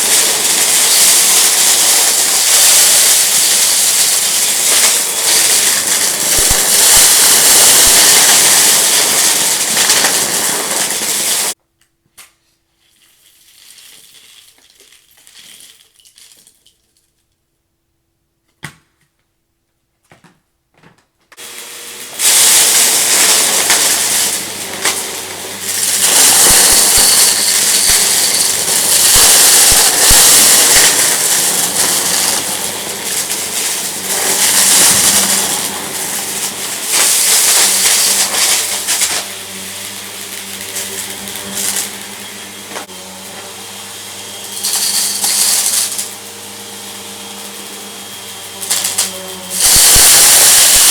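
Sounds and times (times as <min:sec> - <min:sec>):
debris crackling through vacuum: 0:00.0 - 0:11.6, 0:21.4 - 0:42.9, 0:48.6 - 0:50.9
vacuum cleaner running: 0:00.0 - 0:11.6, 0:21.4 - 0:50.9.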